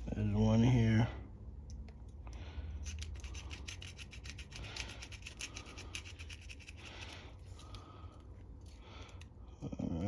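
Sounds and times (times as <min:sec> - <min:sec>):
tool scraping carburetor: 0:02.8 - 0:07.2.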